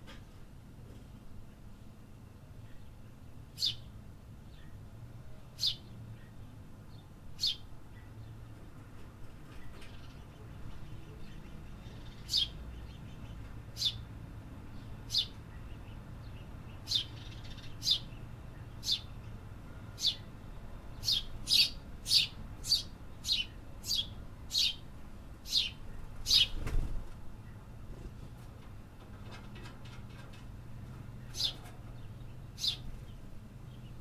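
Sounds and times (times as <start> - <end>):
low background hum: 0.0 - 34.0
small bird chirping: 3.6 - 3.9, 5.6 - 8.3, 9.6 - 14.1, 14.7 - 19.2, 20.0 - 20.3, 20.9 - 26.6, 31.2 - 34.0.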